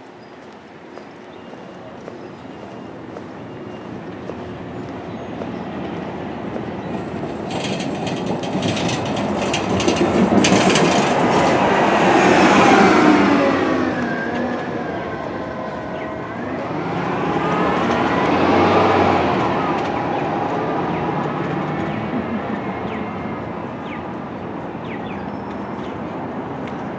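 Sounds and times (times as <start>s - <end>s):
passing vehicle traffic: 4.1s - 26.9s.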